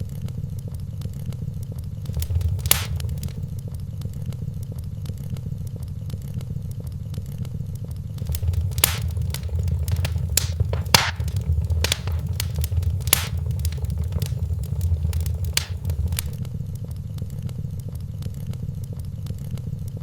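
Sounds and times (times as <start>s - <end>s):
low rumble: 2.1s - 3.5s, 8.2s - 16.4s
wood fire crackling: 2.1s - 3.5s, 8.2s - 16.4s.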